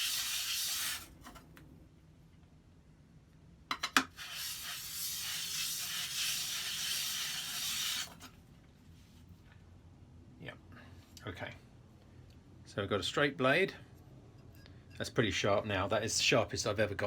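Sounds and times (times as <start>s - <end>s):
blade scraping on abrasive paper: 0.0s - 1.4s, 4.1s - 8.3s.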